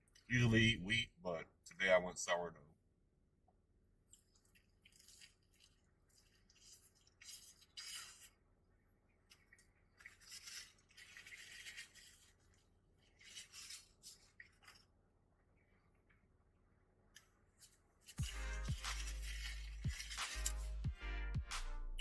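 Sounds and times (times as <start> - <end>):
person chewing food: 18.1 - 21.0.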